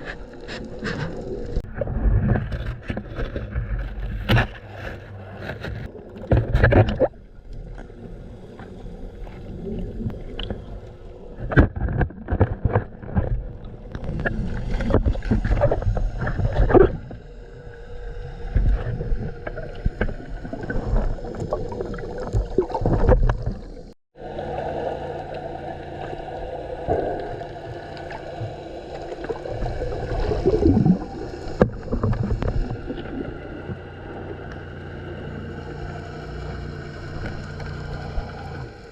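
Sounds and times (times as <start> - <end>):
water slapping against hull: 11.4 - 17.0
boat motor running: 17.2 - 38.9.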